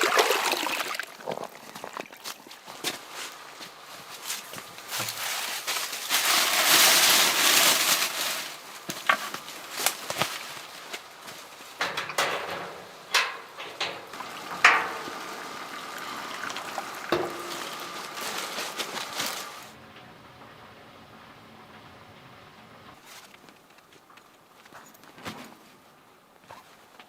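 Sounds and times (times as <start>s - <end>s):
knocks and clinks: 11.8s - 15.2s.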